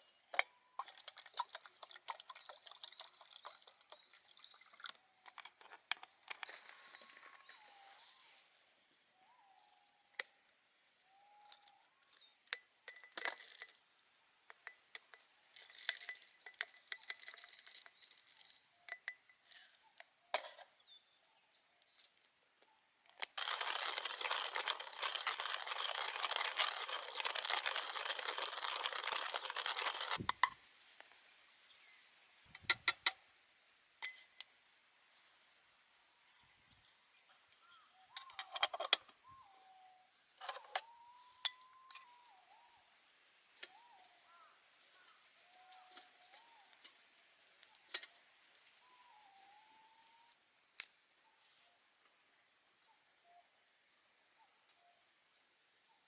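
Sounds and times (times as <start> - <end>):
small hard objects clinking: 0.3 - 8.5, 11.2 - 13.8, 14.5 - 20.6, 23.1 - 30.5.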